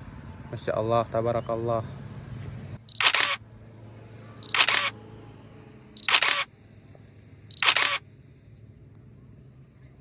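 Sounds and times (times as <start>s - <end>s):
camera shutter firing: 2.9s - 3.4s, 4.4s - 4.9s, 6.0s - 6.5s, 7.5s - 8.0s
short high camera beep: 2.9s - 3.4s, 4.4s - 4.9s, 6.0s - 6.5s, 7.5s - 8.0s.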